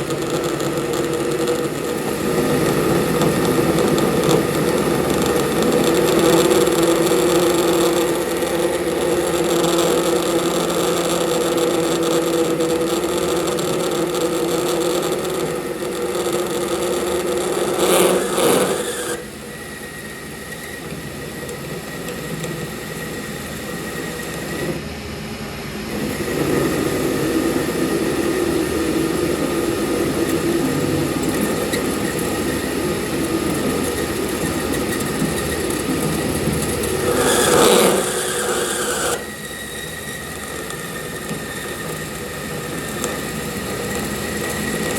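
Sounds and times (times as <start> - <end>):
workshop machine humming: 0.0 - 44.9.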